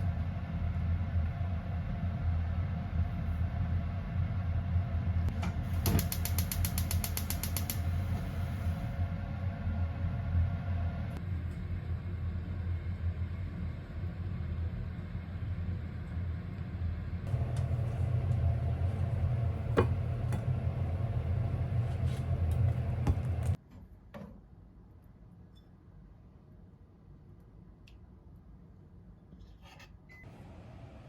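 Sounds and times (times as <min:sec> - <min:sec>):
sharp clicks: 0:05.9 - 0:07.8
low droning hum: 0:07.8 - 0:23.6.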